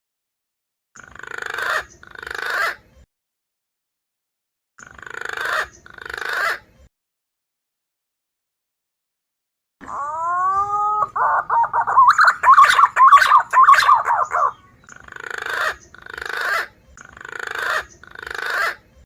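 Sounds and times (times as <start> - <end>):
pigeon calls: 4.8 - 6.6, 9.8 - 18.8.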